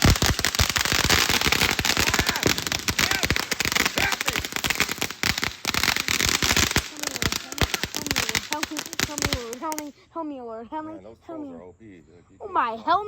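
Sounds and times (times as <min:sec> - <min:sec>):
firework fountain crackling: 0:00.0 - 0:09.9.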